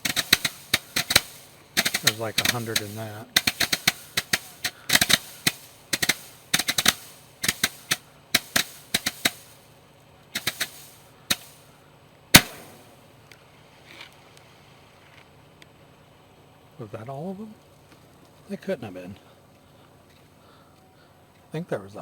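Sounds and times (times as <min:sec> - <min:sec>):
firecrackers popping: 0:00.0 - 0:14.5
loud single bang: 0:12.4 - 0:13.1.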